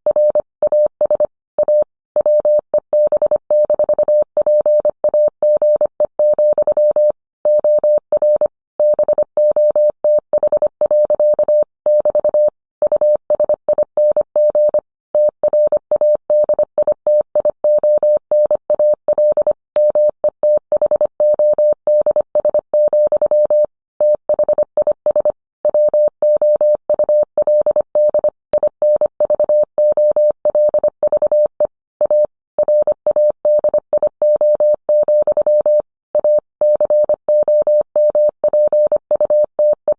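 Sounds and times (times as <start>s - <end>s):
morse code beeps: 0.1s - 39.9s.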